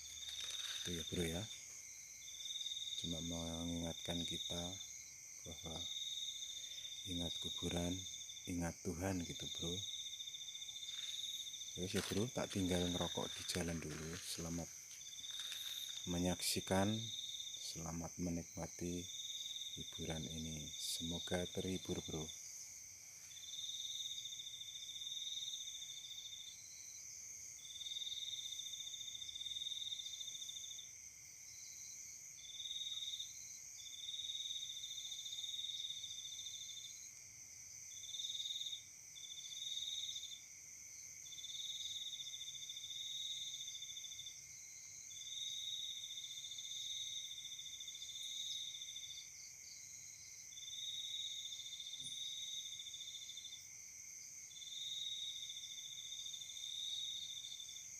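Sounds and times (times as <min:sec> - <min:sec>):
insect high trill: 0:00.0 - 0:30.9
insect chorus: 0:00.0 - 0:57.9.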